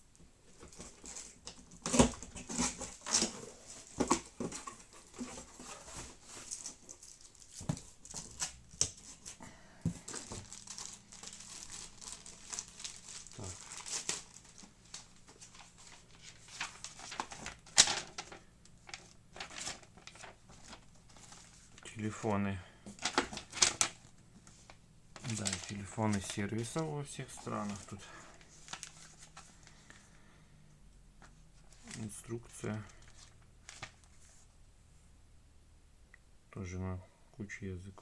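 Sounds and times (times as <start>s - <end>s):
paper and plastic crinkling: 0.5s - 30.1s, 31.6s - 34.5s
packaging tearing: 10.2s - 15.0s.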